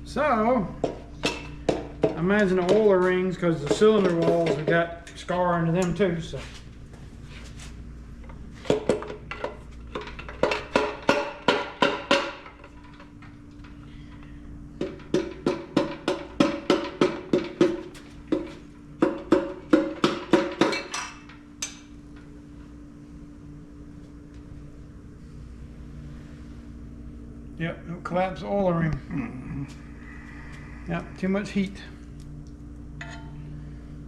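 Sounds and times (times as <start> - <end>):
hammer striking metal: 33.0 - 33.4.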